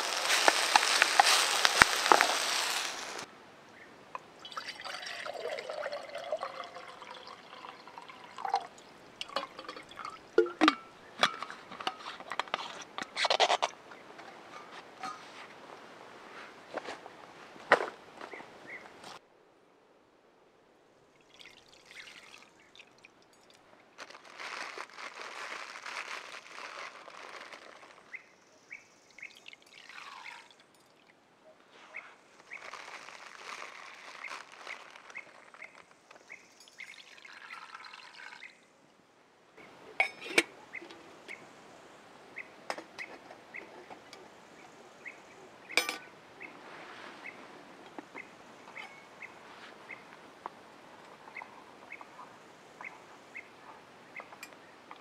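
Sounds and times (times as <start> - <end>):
liquid pouring: 4.4 - 10.7, 21.2 - 23.6, 29.3 - 31.1, 36.6 - 38.6.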